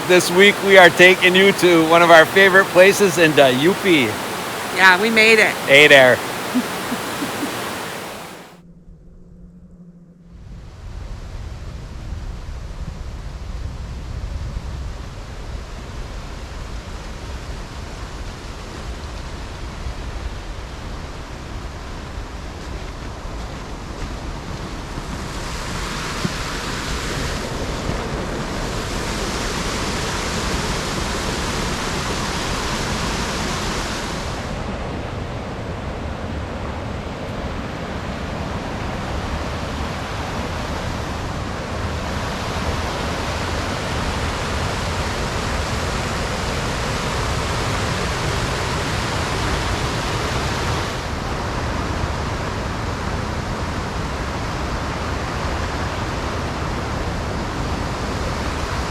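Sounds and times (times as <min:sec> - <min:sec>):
waterfall roaring: 0:00.0 - 0:08.5.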